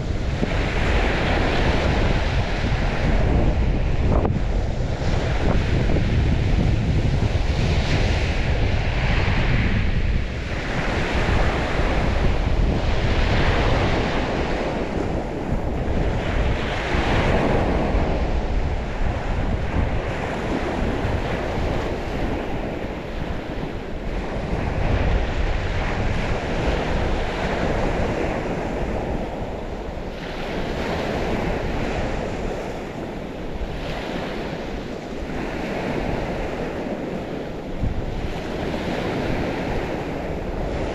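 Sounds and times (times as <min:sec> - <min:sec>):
waves washing onto shore: 0:00.0 - 0:40.9
wind buffeting microphone: 0:00.0 - 0:40.9.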